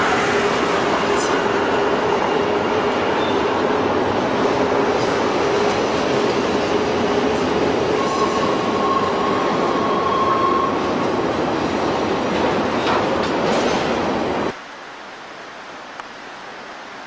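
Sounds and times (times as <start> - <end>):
train rolling past: 0.0 - 14.5
wheel squeal: 8.0 - 10.8.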